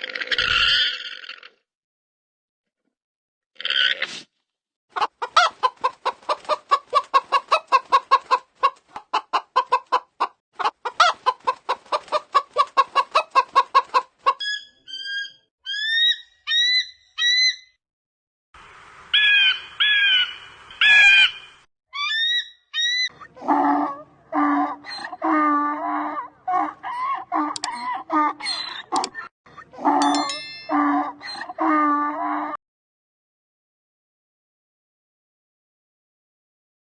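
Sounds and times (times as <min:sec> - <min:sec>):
chickens clucking: 0:04.9 - 0:14.7, 0:26.3 - 0:29.7.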